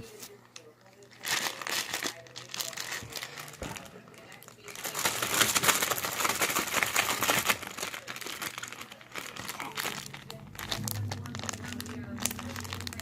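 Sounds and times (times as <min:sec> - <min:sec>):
dense crinkling and crackling: 0:00.0 - 0:13.0
low hum: 0:09.6 - 0:13.0.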